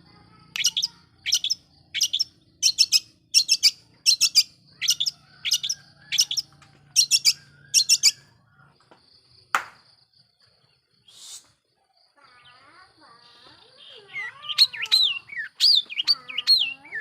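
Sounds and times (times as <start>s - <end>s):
bird harsh chattering calls: 0.3s - 8.4s, 13.8s - 17.0s.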